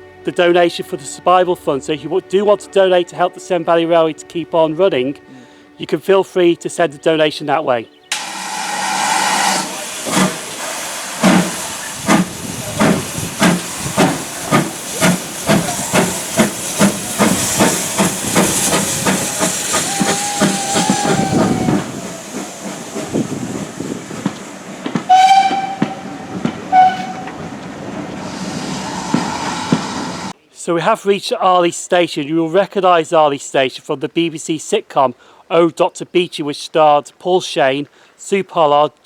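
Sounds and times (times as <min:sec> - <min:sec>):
steam whistle blasts: 0:08.1 - 0:24.0, 0:25.1 - 0:27.5, 0:28.1 - 0:30.4
steam hissing: 0:08.1 - 0:30.4
steam locomotive exhaust beats: 0:08.1 - 0:30.4.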